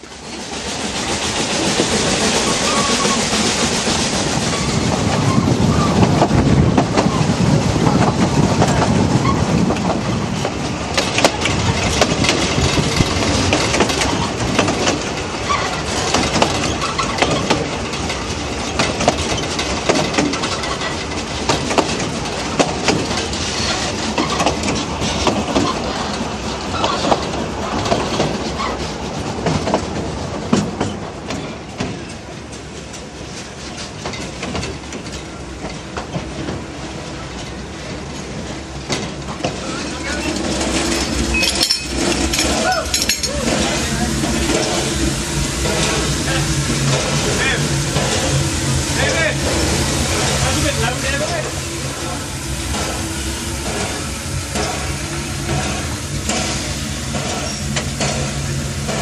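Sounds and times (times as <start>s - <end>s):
train wheels rumbling on rail: 0.0s - 59.0s
track joint clicks and clatter: 7.7s - 36.6s, 37.3s - 48.5s, 53.6s - 59.0s.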